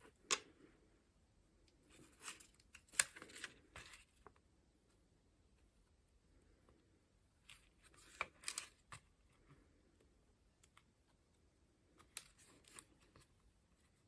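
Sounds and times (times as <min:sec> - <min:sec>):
paper pages turning: 0:01.9 - 0:04.3, 0:07.5 - 0:09.1.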